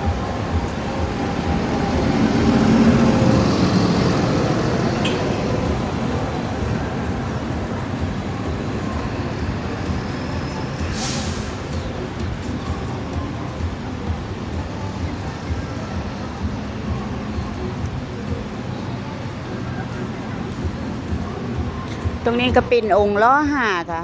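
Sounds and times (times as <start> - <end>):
bus engine rumbling: 0.0 - 24.0
traffic noise: 0.0 - 24.0
short sharp hiss: 10.9 - 11.6.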